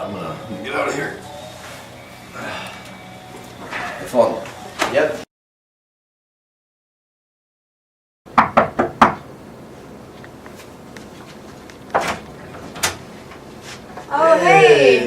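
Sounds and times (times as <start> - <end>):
knocks on a door: 8.3 - 9.2.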